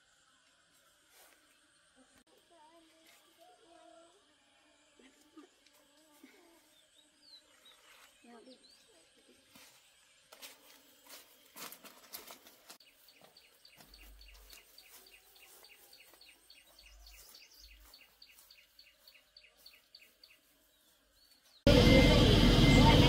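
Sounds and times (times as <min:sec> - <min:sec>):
small bird chirping rapidly: 0:12.8 - 0:21.7.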